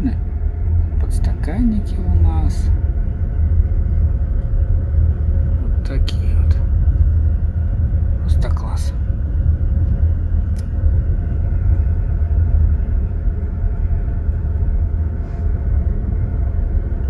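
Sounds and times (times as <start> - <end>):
moving train rumble: 0.0 - 17.0.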